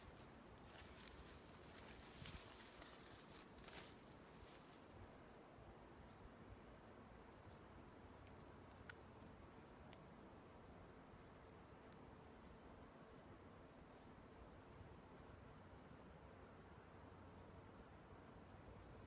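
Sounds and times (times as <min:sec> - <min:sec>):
faint bird chirping: 0:05.8 - 0:06.4, 0:07.2 - 0:07.9, 0:08.6 - 0:10.2, 0:11.0 - 0:12.8, 0:13.7 - 0:15.7, 0:16.7 - 0:19.0
faint clicks: 0:08.2 - 0:09.0, 0:09.8 - 0:10.1.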